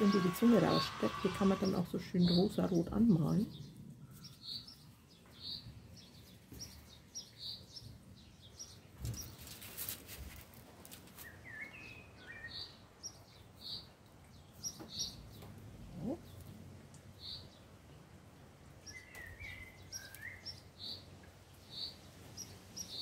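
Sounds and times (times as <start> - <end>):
small birds chirping: 0.0 - 23.0
aluminium foil rustling: 9.0 - 11.5.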